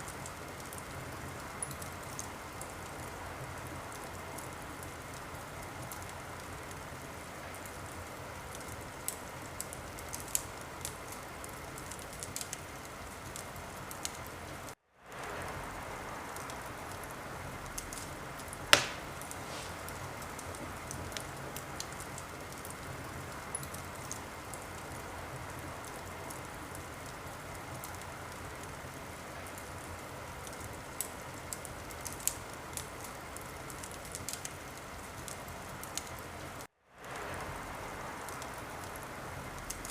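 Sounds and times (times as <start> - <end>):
wood fire crackling: 0.0 - 39.9
loud fire pop: 18.7 - 20.6.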